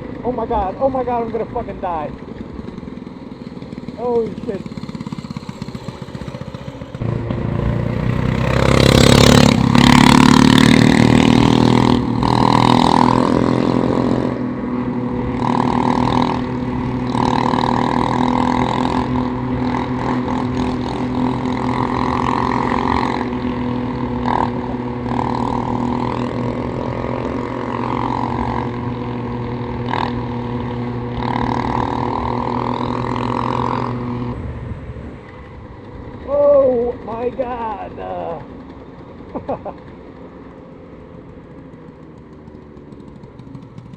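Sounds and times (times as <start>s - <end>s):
small motorcycle engine running: 0.0s - 43.9s
wind gusting on microphone: 4.6s - 39.0s.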